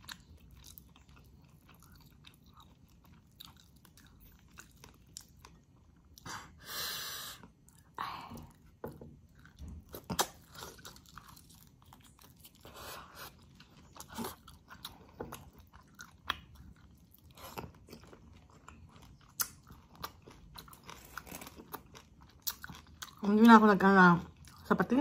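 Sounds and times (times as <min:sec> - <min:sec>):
person chewing food: 0:00.0 - 0:06.6, 0:07.2 - 0:23.6.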